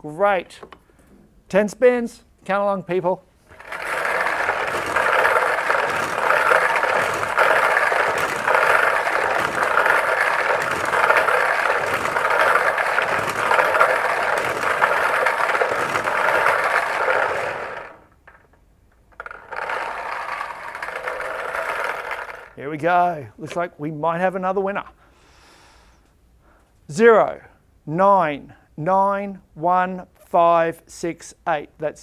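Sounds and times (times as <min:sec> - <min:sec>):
lottery barrel turning and rattling: 0:03.5 - 0:18.4, 0:19.1 - 0:22.6.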